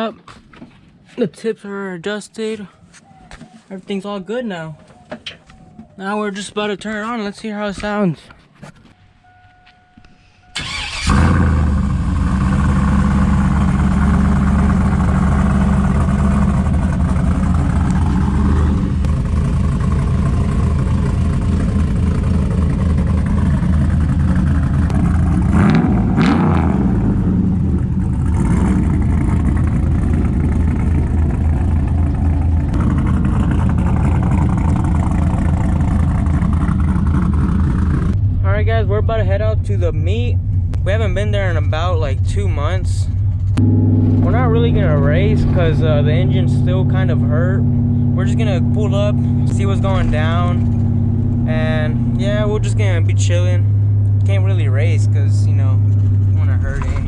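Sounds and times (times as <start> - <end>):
truck engine idling: 10.5 - 25.7, 27.3 - 57.0
throttle blip: 43.6 - 44.4.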